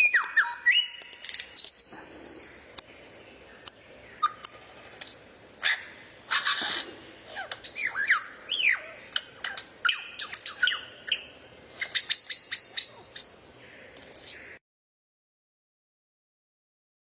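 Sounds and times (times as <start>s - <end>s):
songbird singing: 0.0s - 14.6s.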